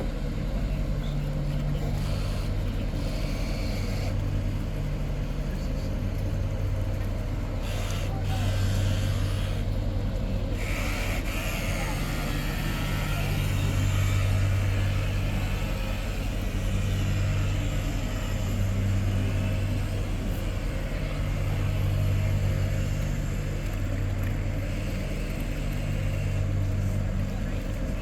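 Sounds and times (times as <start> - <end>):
motor humming: 7.6 - 28.0.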